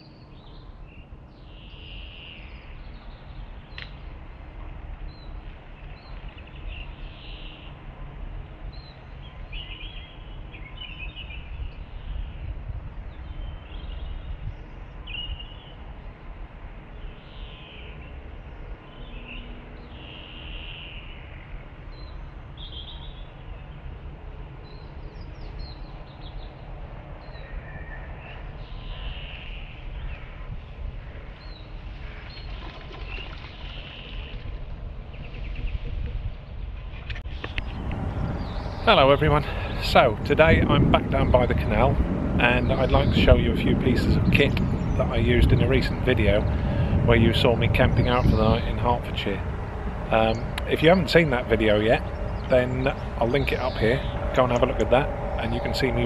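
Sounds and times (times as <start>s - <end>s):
small birds chirping: 5.0s - 7.8s, 8.7s - 15.8s, 16.9s - 23.9s, 24.6s - 56.0s
low rumble: 34.6s - 56.0s.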